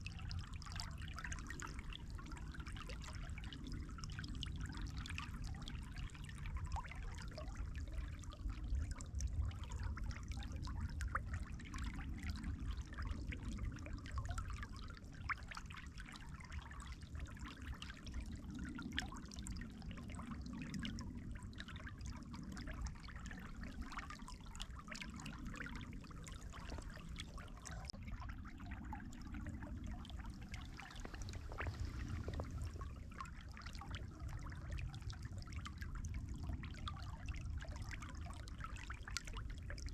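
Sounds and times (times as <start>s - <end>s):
water trickling and splashing: 0.0s - 39.9s
low rumble: 25.6s - 36.6s.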